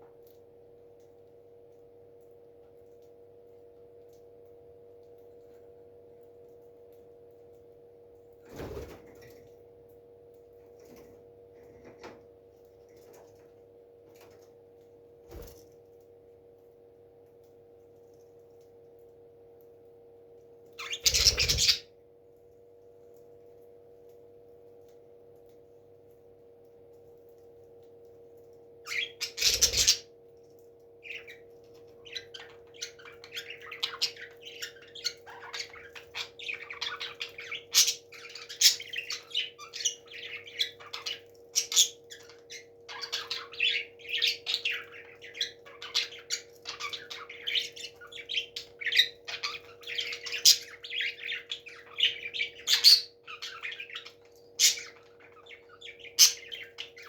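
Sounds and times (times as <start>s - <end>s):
faint steady hum: 0.0s - 57.0s
parrots chirping and squawking: 20.8s - 21.9s, 28.9s - 30.1s, 31.0s - 57.0s.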